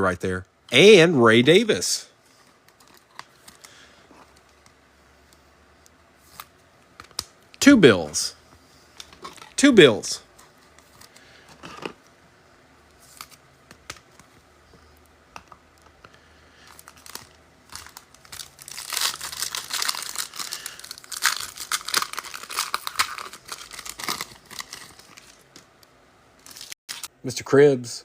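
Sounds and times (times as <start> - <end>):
card pack wrapper crinkling and tearing: 16.6 - 25.6, 26.4 - 27.1.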